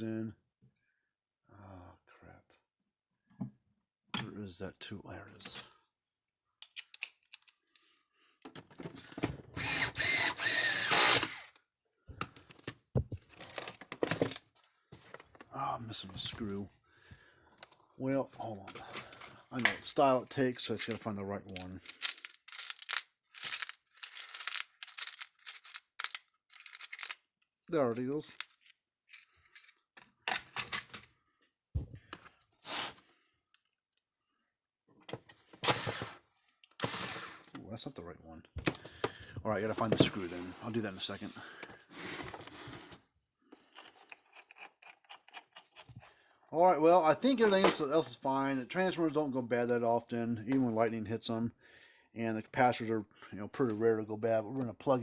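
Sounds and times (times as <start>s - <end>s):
power drill driving screws: 9.6s - 11.6s.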